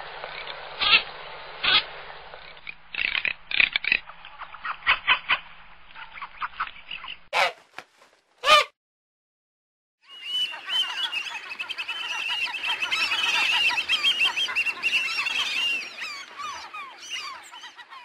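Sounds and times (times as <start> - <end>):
flock of waterbirds calling: 10.0 - 18.0.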